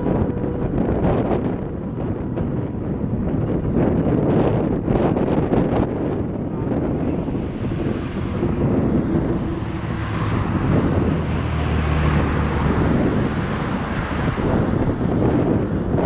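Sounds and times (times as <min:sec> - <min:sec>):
road and engine noise: 0:00.0 - 0:16.0
wind rushing over microphone: 0:00.0 - 0:16.0.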